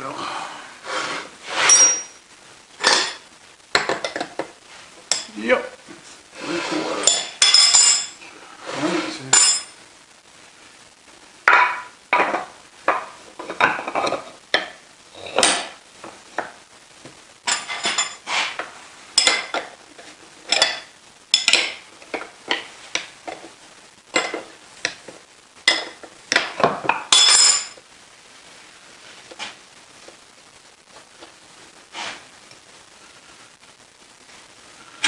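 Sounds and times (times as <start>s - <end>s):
metal tools clinking and scraping: 1.6s - 2.2s, 7.0s - 8.2s, 9.3s - 9.8s, 17.5s - 18.3s, 27.1s - 27.8s.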